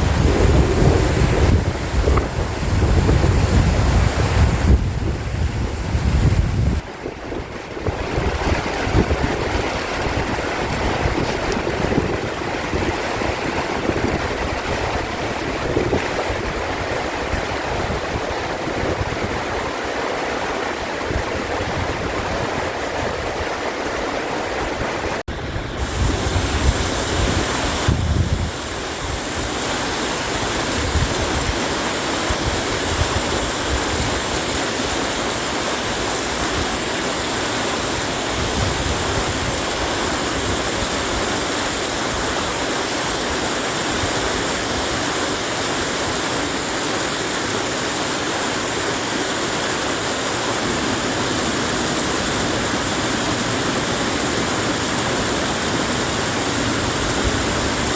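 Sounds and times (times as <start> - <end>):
wind buffeting microphone: 0.0 - 20.0, 20.6 - 46.2
stream rushing over rocks: 0.0 - 57.9.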